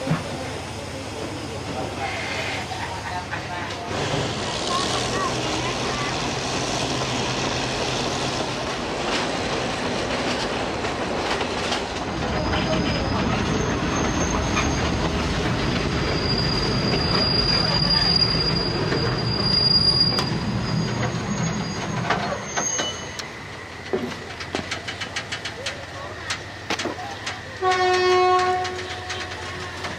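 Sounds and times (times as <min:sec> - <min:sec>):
train running along track: 0:00.0 - 0:29.9
steel wheels squealing: 0:12.2 - 0:29.9.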